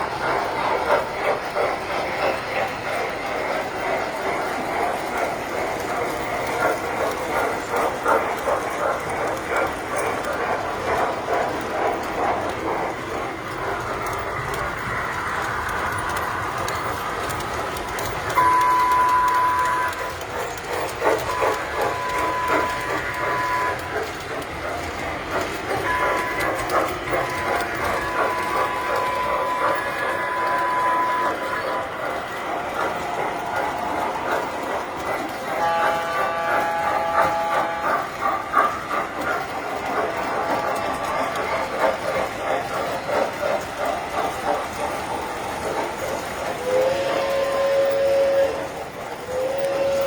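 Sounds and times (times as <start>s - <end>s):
toy trains clattering on metal track: 0.0s - 50.0s
train whistle blasts: 18.3s - 20.2s, 35.6s - 38.2s, 46.6s - 50.0s.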